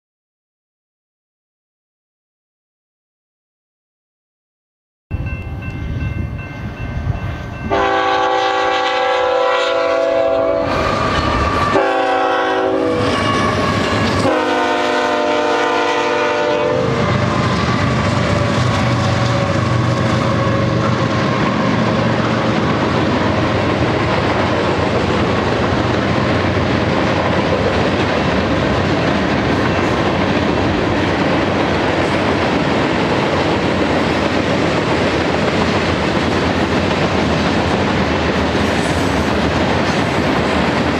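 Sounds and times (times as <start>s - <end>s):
freight train rumbling: 5.1s - 40.9s
train air horn blasts: 7.6s - 21.7s.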